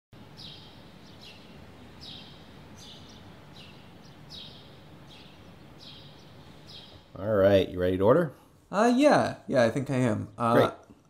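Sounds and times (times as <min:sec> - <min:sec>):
small bird chirping: 0:00.2 - 0:07.4
low steady background hiss: 0:00.2 - 0:11.0.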